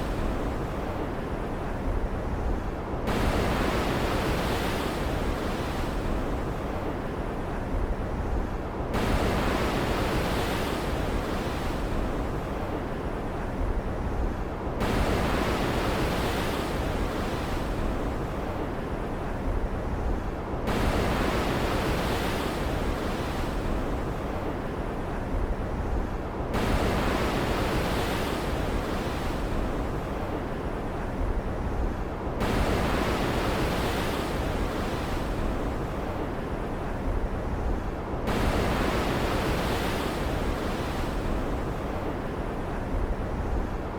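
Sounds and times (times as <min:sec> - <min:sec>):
wind: 0:00.0 - 0:43.9
surf washing: 0:20.2 - 0:43.9.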